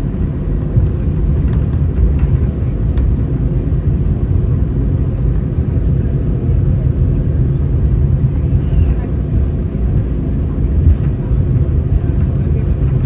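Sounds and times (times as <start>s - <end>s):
airplane cabin low rumble: 0.0s - 13.0s.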